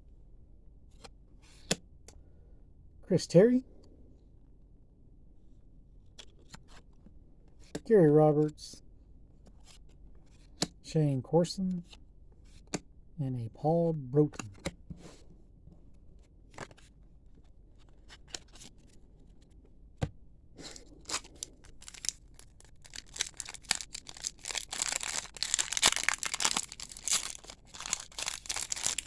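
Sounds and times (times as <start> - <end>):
plastic wrapper tearing and crinkling: 20.6 - 29.0.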